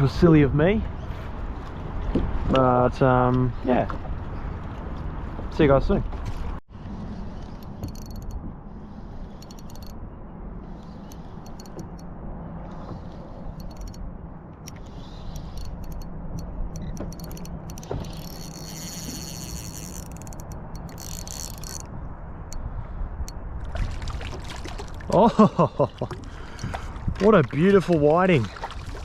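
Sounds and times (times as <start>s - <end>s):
fishing reel clicking and whirring: 7.6s - 8.4s, 9.2s - 10.0s, 10.8s - 12.0s, 13.5s - 14.0s, 14.7s - 21.9s.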